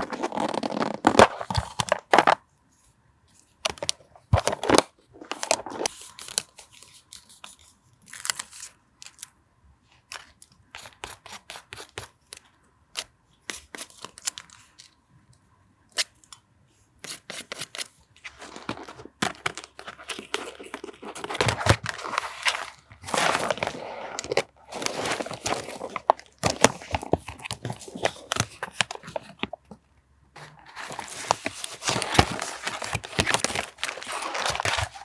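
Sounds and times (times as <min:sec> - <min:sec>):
paper rustling: 0:17.0 - 0:29.6, 0:30.4 - 0:35.0.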